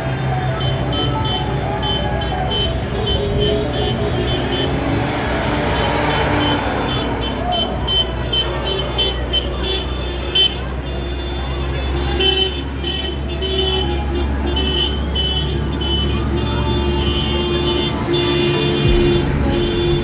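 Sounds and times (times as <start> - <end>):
electronic dance music: 0.0 - 8.3, 16.0 - 20.0
tractor engines passing: 0.0 - 20.0.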